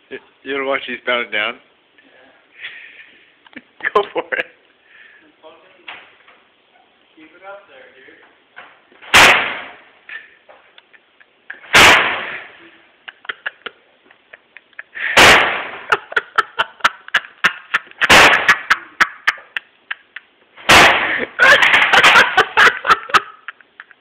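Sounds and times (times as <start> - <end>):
microwave being smashed: 18.0 - 18.7, 20.6 - 23.2.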